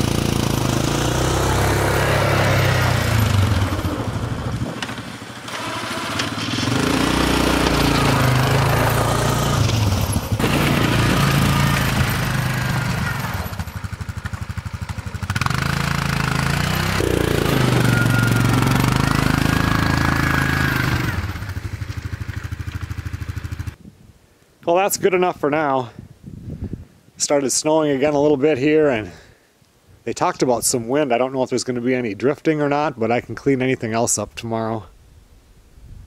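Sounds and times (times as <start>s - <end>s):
snow machine engine revving: 0.0s - 23.8s.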